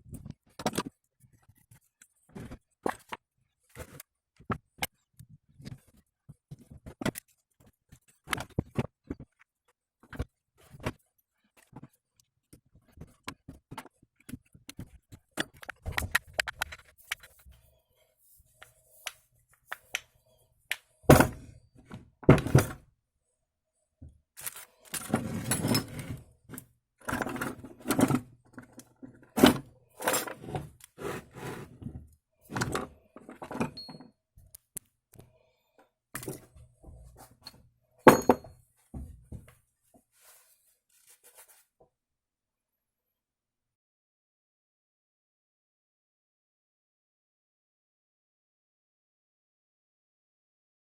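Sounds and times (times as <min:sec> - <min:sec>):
metal tools clinking and scraping: 0:24.4 - 0:26.2, 0:33.4 - 0:34.0.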